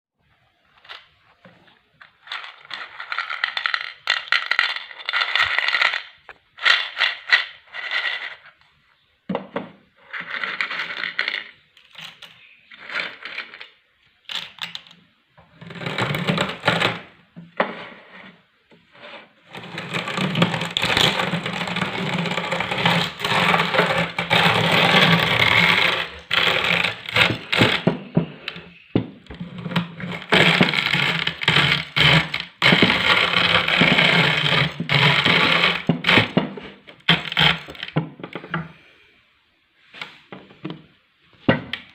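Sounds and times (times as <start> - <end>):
electric meat grinder crunching: 19.6 - 28.0, 29.6 - 36.4, 37.1 - 37.9.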